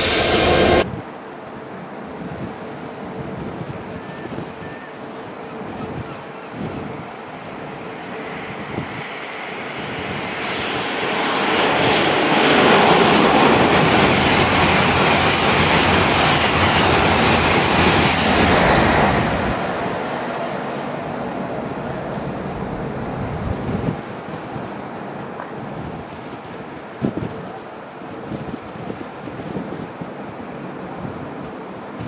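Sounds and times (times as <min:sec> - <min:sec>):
train passing by: 0:00.0 - 0:32.0.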